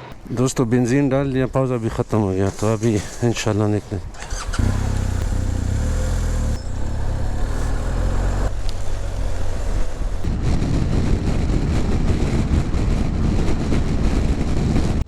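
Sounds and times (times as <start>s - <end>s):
rumble of riding noise: 0.0s - 15.0s
motorcycle engine running: 2.5s - 14.0s.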